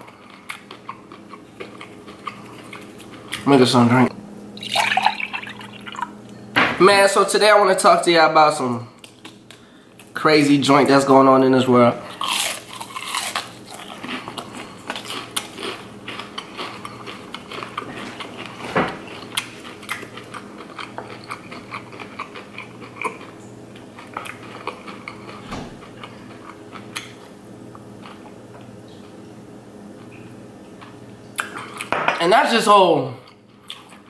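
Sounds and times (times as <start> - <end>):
chewing crispy fried shrimp: 0.0 - 3.6, 12.1 - 29.2, 33.2 - 34.0.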